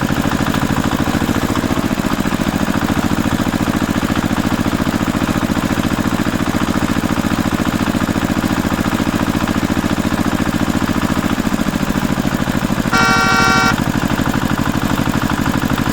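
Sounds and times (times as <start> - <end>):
tractor engine running: 0.0 - 15.9
short horn honk: 12.9 - 13.8.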